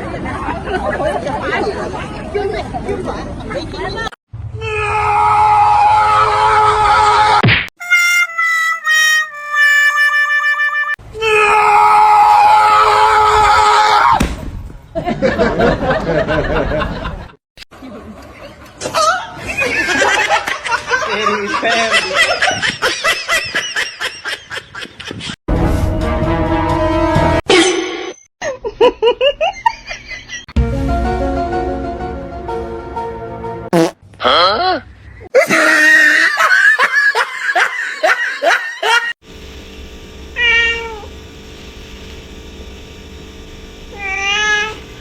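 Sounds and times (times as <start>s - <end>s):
steady low hum: 39.2s - 45.0s
cat meowing: 44.0s - 44.8s.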